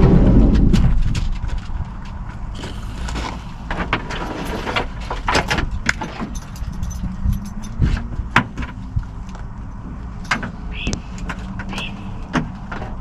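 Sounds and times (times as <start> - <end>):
steady low rumble: 0.0 - 13.0
clicks knocks and rattles of handling: 3.1 - 10.6.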